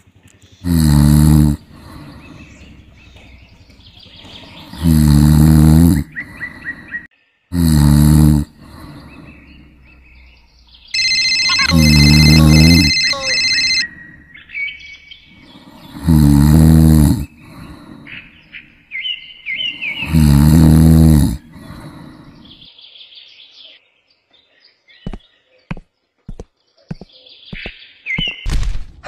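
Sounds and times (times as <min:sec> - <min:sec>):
birds chirping: 0:00.0 - 0:07.5, 0:08.5 - 0:28.5
deep cartoon snoring: 0:00.6 - 0:02.9, 0:04.4 - 0:06.8, 0:07.5 - 0:09.5, 0:11.6 - 0:12.9, 0:15.4 - 0:18.0, 0:19.9 - 0:22.6.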